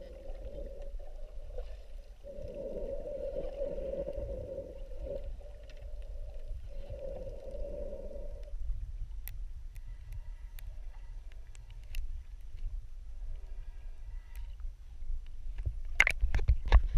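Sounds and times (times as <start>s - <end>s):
water rumbling: 0.0s - 10.0s.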